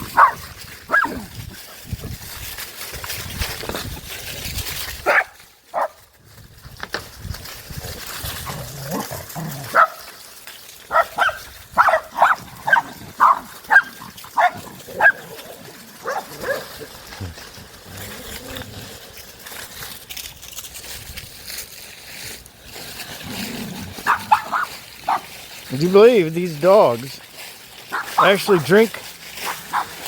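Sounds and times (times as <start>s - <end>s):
dogs barking: 0.0s - 1.4s, 5.0s - 6.0s, 9.6s - 10.1s, 10.9s - 16.9s, 23.9s - 25.3s, 27.9s - 30.0s.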